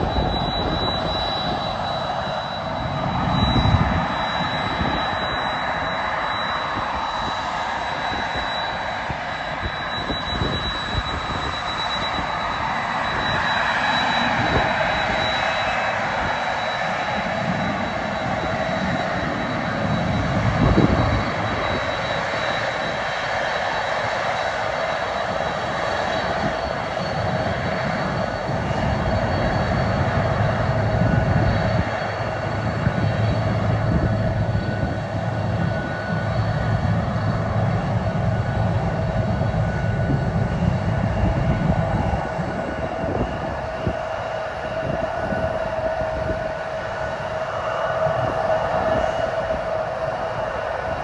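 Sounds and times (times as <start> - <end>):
jet engines roaring with whine: 0.0 - 51.0.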